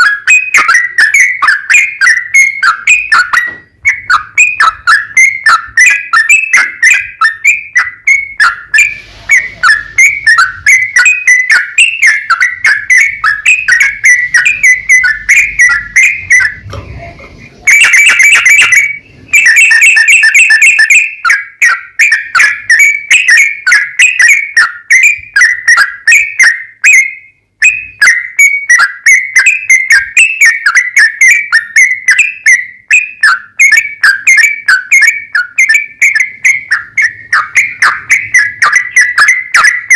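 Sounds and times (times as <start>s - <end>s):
bird singing rapid whistled notes: 0.0s - 39.9s.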